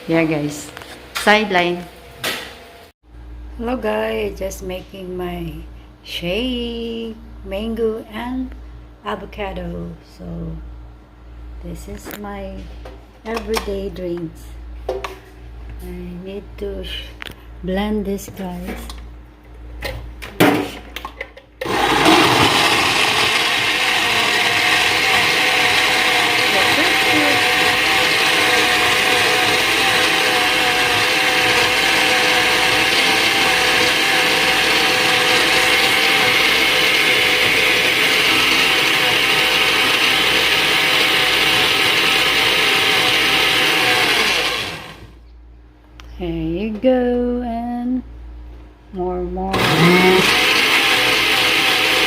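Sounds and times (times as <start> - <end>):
electric blender running: 21.6 - 45.2, 49.5 - 52.0
person speaking: 23.4 - 35.1.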